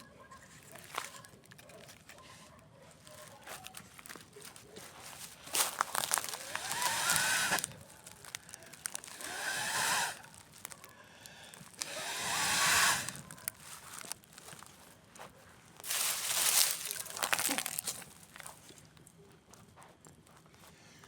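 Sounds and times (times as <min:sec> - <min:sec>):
fire crackling: 0:05.5 - 0:11.9
breath blowing onto fire: 0:05.8 - 0:13.4.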